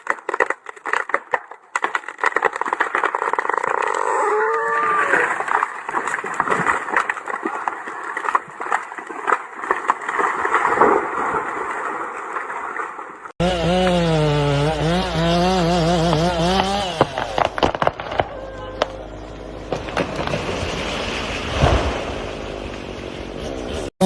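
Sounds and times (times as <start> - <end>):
wood cracking and snapping: 0.0 - 12.9, 16.0 - 19.0, 19.7 - 22.9.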